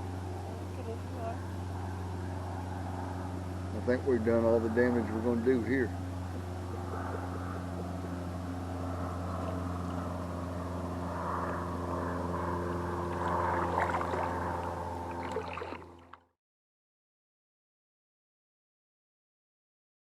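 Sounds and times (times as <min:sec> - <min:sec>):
motor running steadily: 0:00.0 - 0:16.2
water sloshing: 0:13.0 - 0:16.2.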